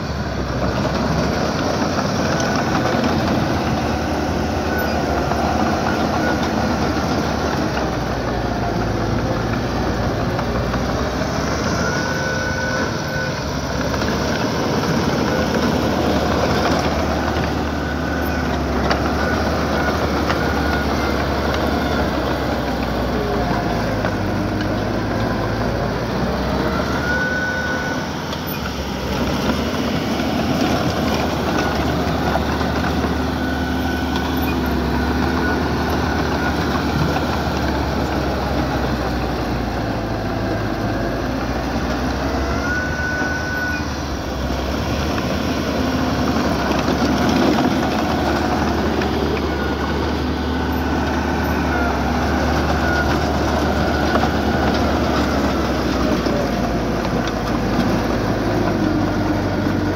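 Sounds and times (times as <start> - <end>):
bulldozer diesel engine: 0.0 - 59.9
short squeals: 9.7 - 56.4.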